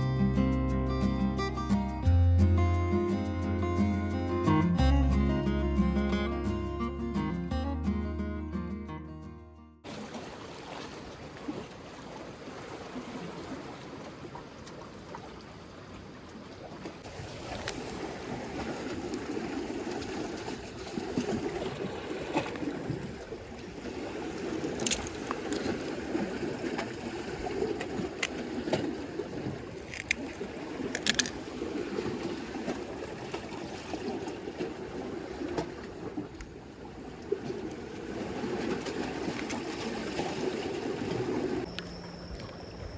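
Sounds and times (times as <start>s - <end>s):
water lapping against breakwater: 9.8s - 41.7s.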